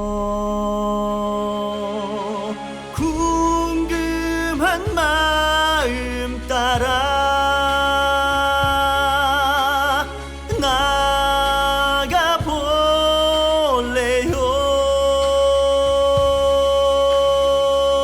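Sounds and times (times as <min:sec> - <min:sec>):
instrumental backing music: 0:00.0 - 0:18.0
person singing with vibrato: 0:00.0 - 0:18.0.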